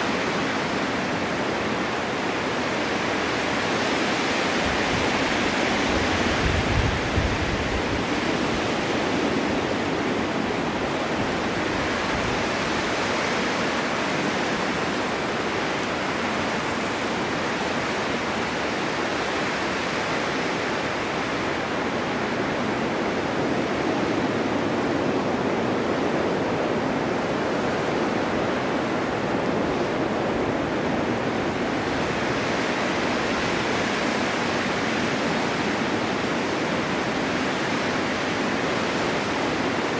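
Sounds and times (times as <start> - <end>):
storm wind rushing: 0.0 - 19.2.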